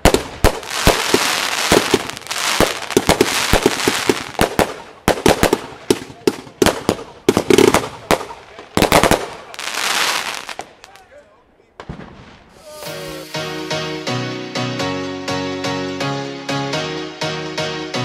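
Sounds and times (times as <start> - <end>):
fireworks banging: 0.0 - 11.1, 11.8 - 13.3
crackling hiss of fireworks: 0.0 - 11.2, 11.8 - 13.5.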